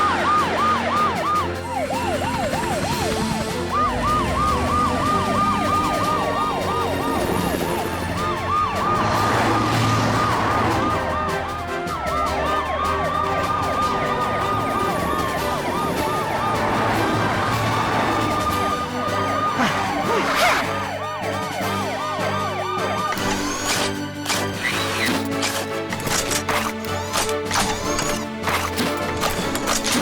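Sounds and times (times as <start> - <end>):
cartoon sirens wailing and yelping: 0.0 - 24.0
background music: 0.0 - 30.0.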